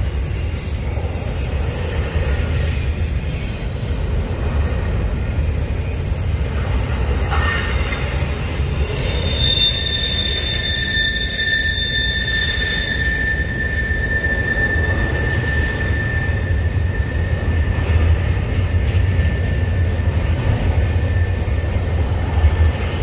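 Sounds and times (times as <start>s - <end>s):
train wheels rumbling on rails: 0.0s - 23.0s
high wheel squeal: 4.7s - 23.0s.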